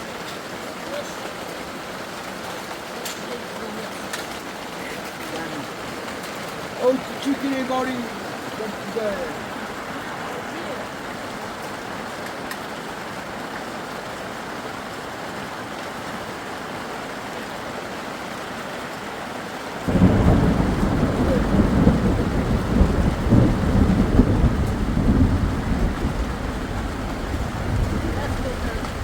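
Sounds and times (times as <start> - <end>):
rain hiss: 0.0 - 29.0
thunder rumbling: 19.9 - 29.0.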